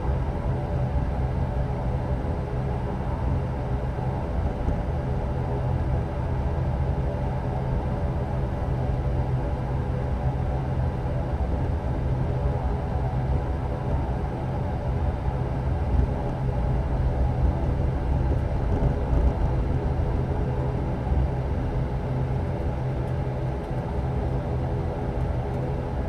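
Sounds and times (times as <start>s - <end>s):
turboprop cabin drone: 0.0s - 26.0s.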